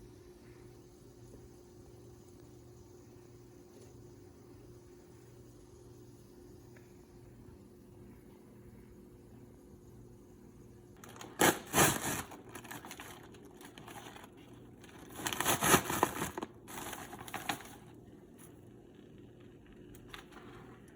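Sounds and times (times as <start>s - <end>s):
paper bag crinkling: 11.0s - 17.9s.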